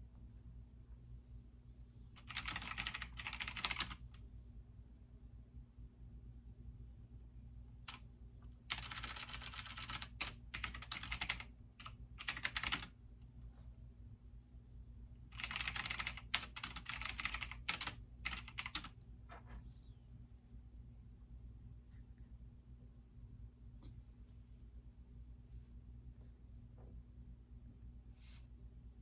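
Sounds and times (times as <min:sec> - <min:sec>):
faint low hum: 0:00.0 - 0:29.0
computer keyboard typing: 0:02.2 - 0:04.0, 0:08.7 - 0:12.9, 0:15.3 - 0:18.9.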